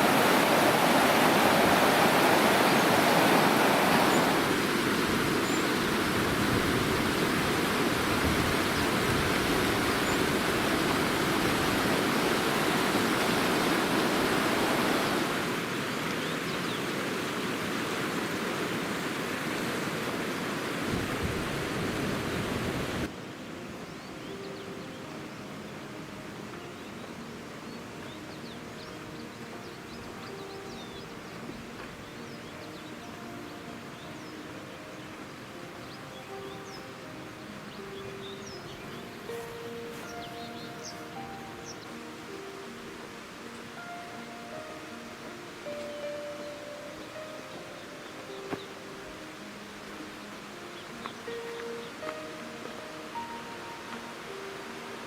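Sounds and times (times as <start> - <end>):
rushing water: 0.0 - 55.0.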